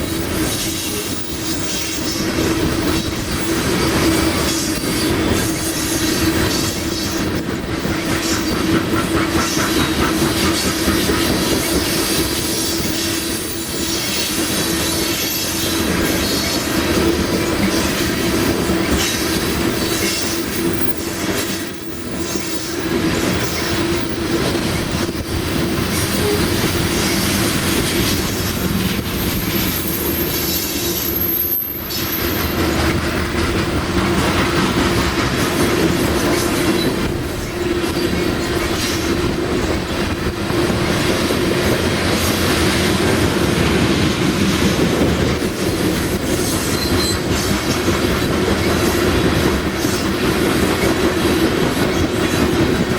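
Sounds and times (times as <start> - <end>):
train wheels rumbling on rails: 0.0 - 52.9
wheels squealing: 21.7 - 33.3, 46.2 - 47.6.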